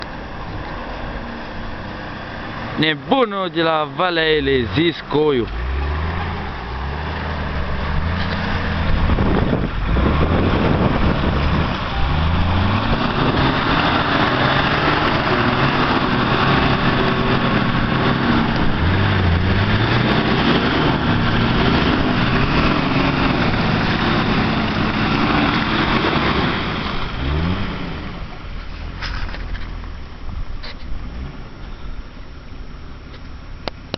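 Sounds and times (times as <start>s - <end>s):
off-road vehicle engine revving: 0.0s - 32.0s
loud rushing noise: 4.0s - 28.1s.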